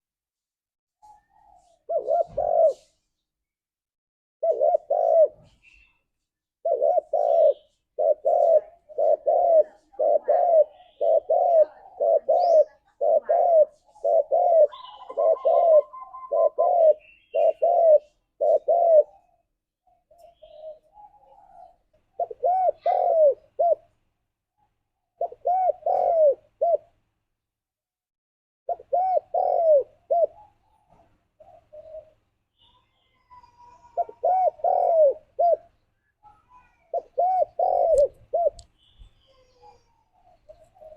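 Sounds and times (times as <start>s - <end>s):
dove cooing: 1.0s - 3.0s, 4.4s - 6.0s, 6.6s - 24.0s, 25.1s - 27.0s, 28.7s - 38.6s, 39.2s - 40.9s.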